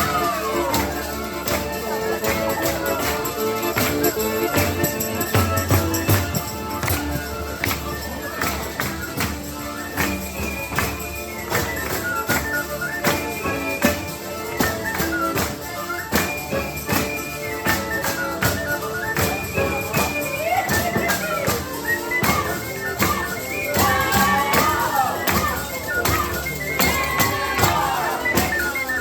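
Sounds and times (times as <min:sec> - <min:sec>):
live folk music: 0:00.0 - 0:29.0
tambourine beat: 0:00.0 - 0:29.0.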